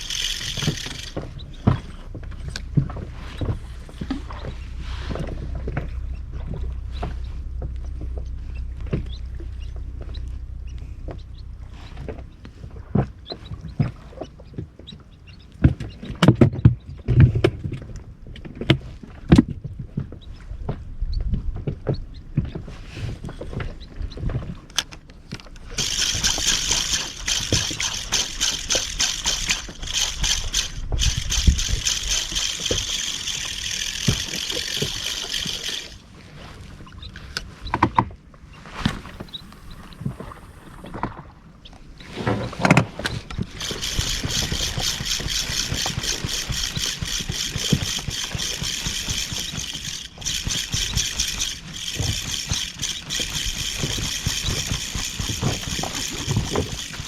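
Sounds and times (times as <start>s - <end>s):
fishing reel clicking: 0.0s - 5.5s, 25.5s - 36.1s, 43.0s - 57.0s
low rumble: 1.1s - 13.2s.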